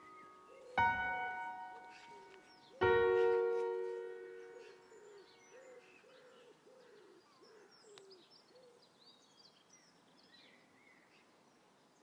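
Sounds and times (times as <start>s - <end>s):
bird low arched notes: 0.0s - 5.8s
small birds chirping: 0.0s - 12.0s.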